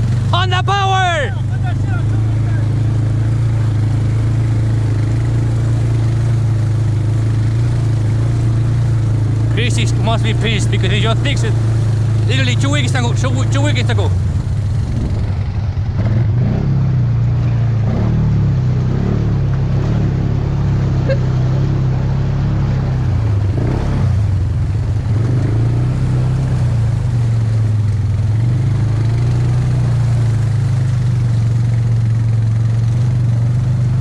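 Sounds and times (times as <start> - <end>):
atv engine running: 0.0 - 34.0.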